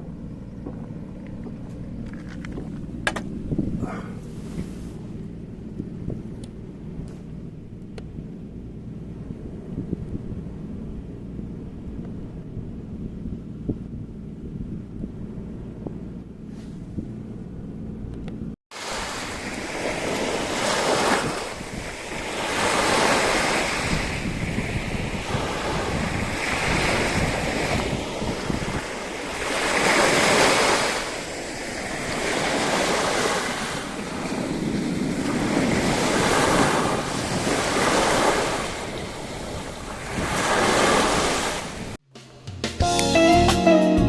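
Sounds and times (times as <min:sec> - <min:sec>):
wind rumbling on microphone: 0:00.0 - 0:42.0
sea waves washing onto shore: 0:18.7 - 0:42.0.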